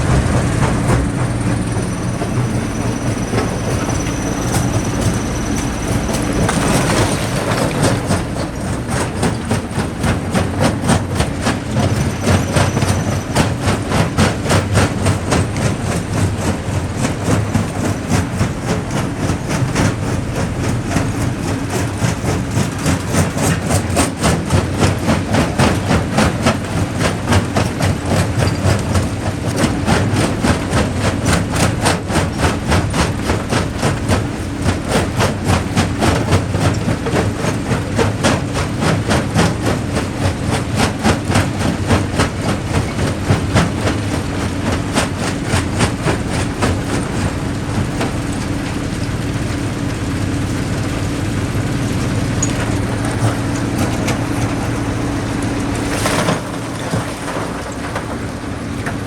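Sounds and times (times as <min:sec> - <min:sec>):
machine drone: 0:00.0 - 0:59.0.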